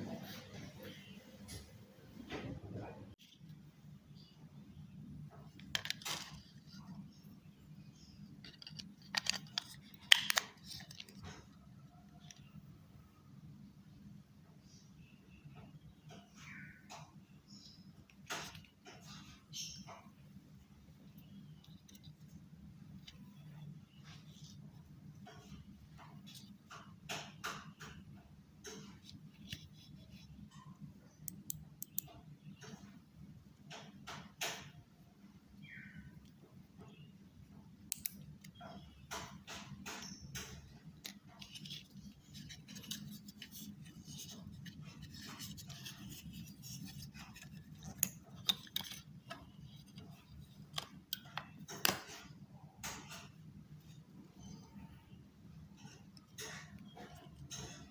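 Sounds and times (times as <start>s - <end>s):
plastic parts clicking: 5.5s - 6.5s, 8.4s - 11.4s, 37.9s - 53.4s
plastic scraping and rustling: 8.3s - 11.6s, 38.6s - 53.4s
sharp plastic clicks: 8.4s - 11.2s, 37.9s - 41.8s.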